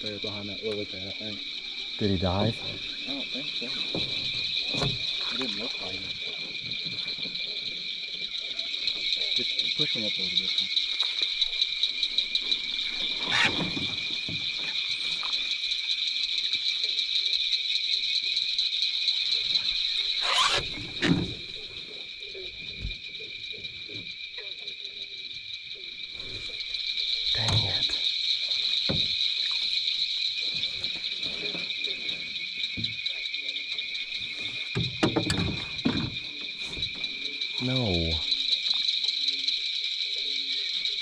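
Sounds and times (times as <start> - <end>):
night insects droning: 0.0 - 41.0.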